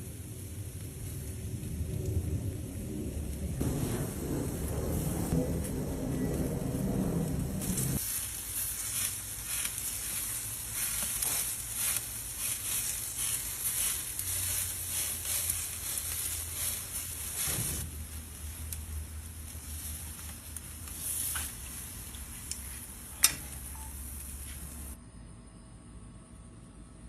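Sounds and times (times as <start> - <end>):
food sizzling in a pan: 7.7 - 25.0.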